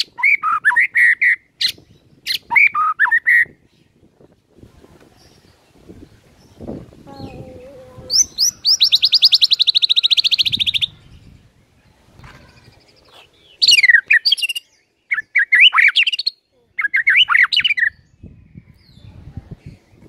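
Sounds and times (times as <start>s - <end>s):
bird whistled phrases: 0.0s - 3.6s, 8.1s - 11.0s, 13.6s - 18.1s.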